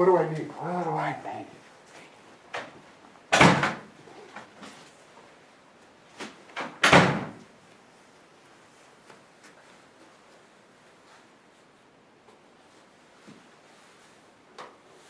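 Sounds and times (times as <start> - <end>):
door banging shut: 3.3 - 3.9, 6.6 - 7.4.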